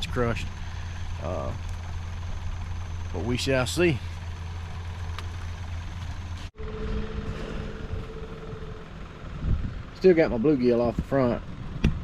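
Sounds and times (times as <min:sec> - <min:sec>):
boat motor humming: 0:00.5 - 0:10.0
motor hum with thin whine: 0:05.0 - 0:09.7.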